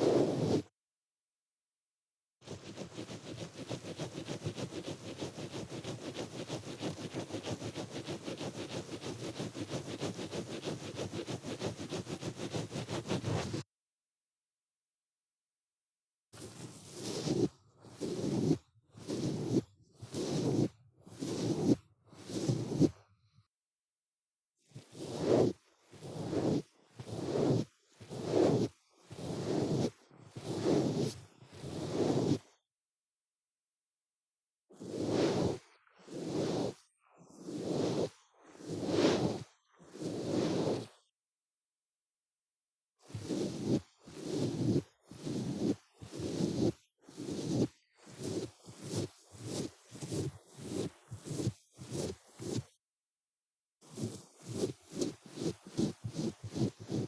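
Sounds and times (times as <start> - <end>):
ear cleaning scraping strokes: 0.0 - 0.6, 16.6 - 22.9, 25.0 - 32.4, 34.8 - 41.0, 43.1 - 52.7, 53.9 - 57.0.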